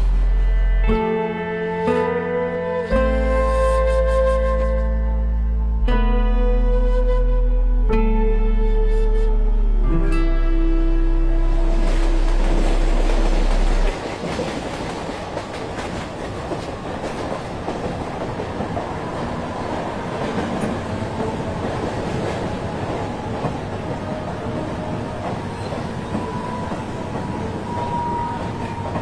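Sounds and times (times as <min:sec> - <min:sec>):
low music drone: 0:00.0 - 0:14.0
train rumbling and rattling: 0:11.4 - 0:29.0.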